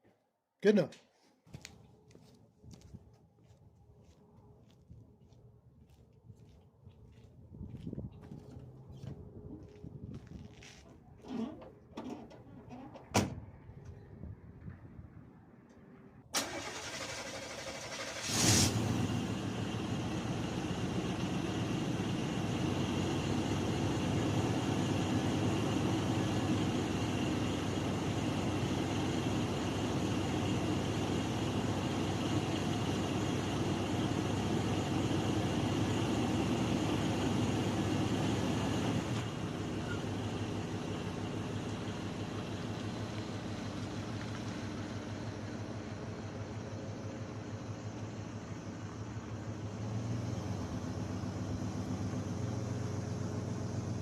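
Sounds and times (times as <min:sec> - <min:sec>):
pickup truck engine idling: 0:16.4 - 0:54.0.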